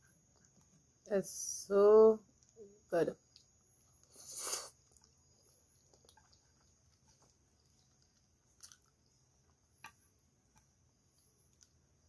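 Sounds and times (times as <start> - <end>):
food being chewed: 3.2 - 12.0.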